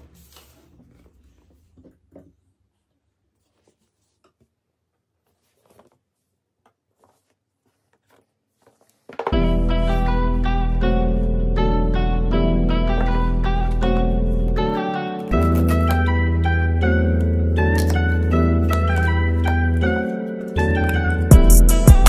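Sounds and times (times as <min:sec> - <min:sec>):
piano and guitar music: 0:09.3 - 0:22.0
packaging clicks and rustles: 0:15.2 - 0:16.1, 0:17.2 - 0:21.1.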